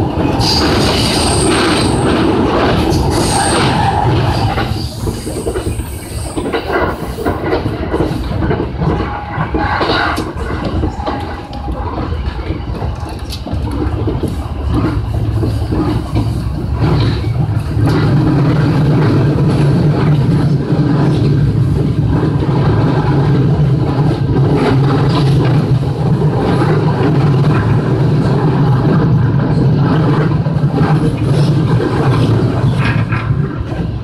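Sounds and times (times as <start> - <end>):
electric train hum: 0.0 - 34.0
wheels clicking on rails: 0.0 - 34.0.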